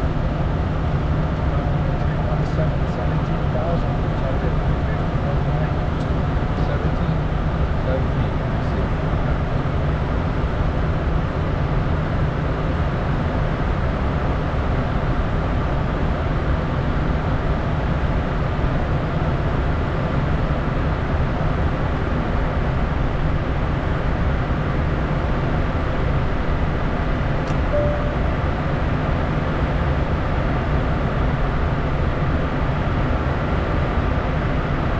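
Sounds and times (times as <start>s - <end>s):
jet cabin engine rumble: 0.0s - 14.3s.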